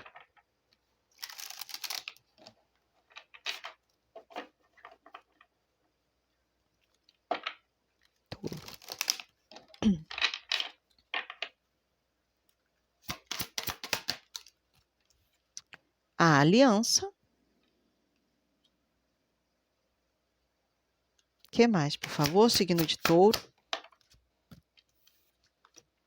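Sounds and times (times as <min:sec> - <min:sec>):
cards being shuffled: 0:01.1 - 0:05.1, 0:08.3 - 0:10.8, 0:13.0 - 0:14.6, 0:22.0 - 0:26.0
card slaps: 0:13.1 - 0:14.3, 0:22.1 - 0:23.5.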